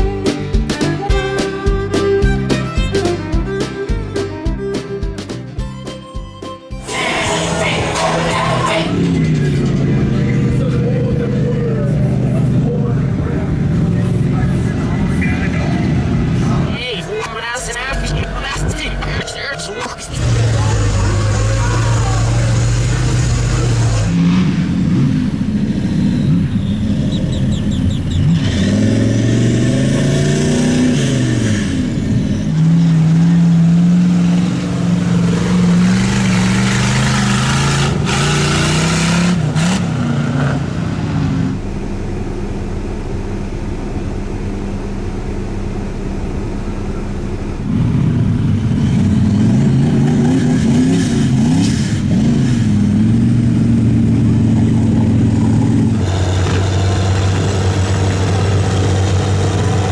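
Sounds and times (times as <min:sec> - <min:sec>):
off-road vehicle engines revving: 0:06.8 - 0:59.9.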